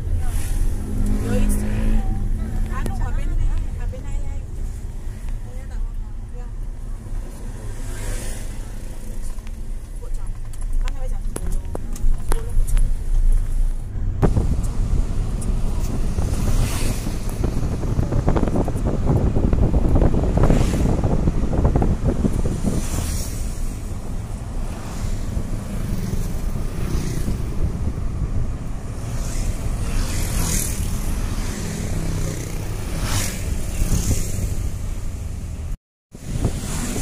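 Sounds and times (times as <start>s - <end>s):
vehicle rumble on road: 0.0s - 37.0s
wind buffeting microphone: 11.2s - 37.0s.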